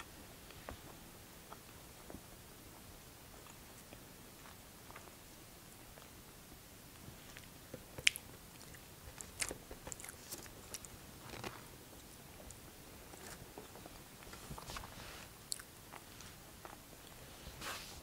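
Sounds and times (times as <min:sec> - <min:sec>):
person chewing: 0:07.3 - 0:17.2.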